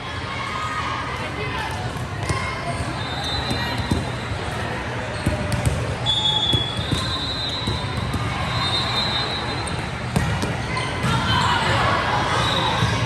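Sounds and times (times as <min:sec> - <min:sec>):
crowd hubbub: 0:00.0 - 0:13.0
volleyball slaps: 0:03.5 - 0:08.5, 0:09.6 - 0:11.5
shoe squeaks: 0:06.0 - 0:09.8.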